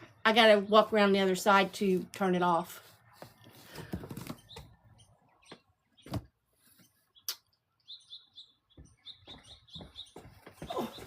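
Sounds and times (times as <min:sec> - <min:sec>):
knocks and footfalls: 0:05.5 - 0:06.4, 0:08.7 - 0:11.0.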